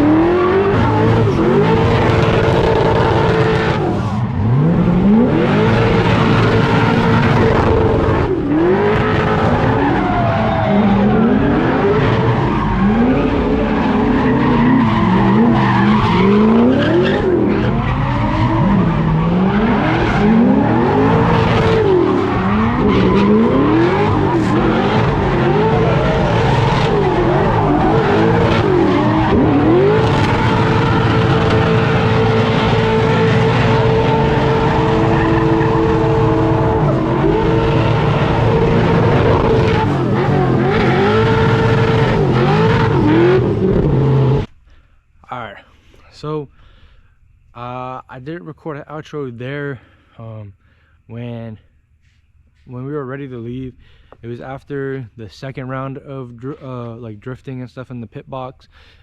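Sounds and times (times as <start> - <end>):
car engine revving: 0.0 - 44.5
tyres skidding and squealing: 0.0 - 44.5.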